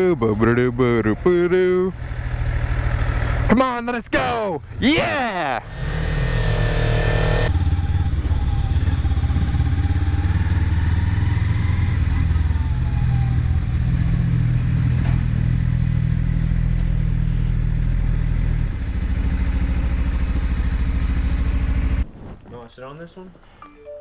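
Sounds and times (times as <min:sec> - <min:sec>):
motorcycle engine running: 0:00.0 - 0:03.5, 0:04.6 - 0:22.1.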